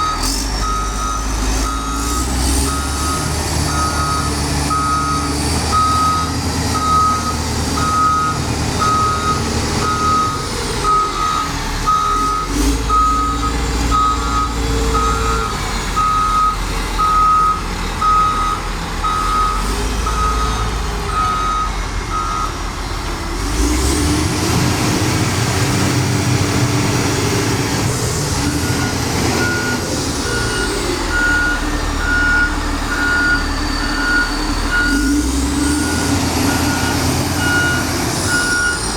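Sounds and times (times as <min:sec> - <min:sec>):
reversing alarm beeping: 0:00.0 - 0:22.6, 0:28.0 - 0:38.9
diesel engine running: 0:00.0 - 0:38.9
higher-pitched reversing alarm: 0:28.3 - 0:35.2.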